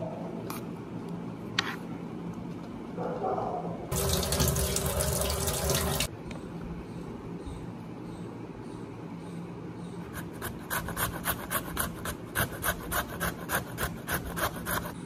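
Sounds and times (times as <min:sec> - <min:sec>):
tap water running: 0:03.9 - 0:06.1.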